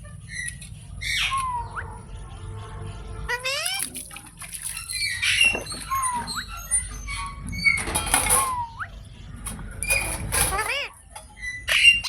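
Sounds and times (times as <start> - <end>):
parrot squawks: 3.3 - 3.9.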